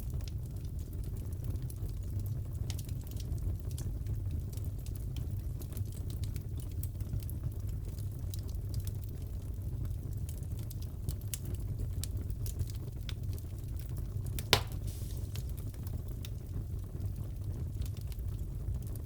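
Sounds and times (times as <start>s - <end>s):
fire crackling: 0.0s - 19.0s
low fire rumble: 0.0s - 19.0s
loud fire pop: 14.4s - 15.7s.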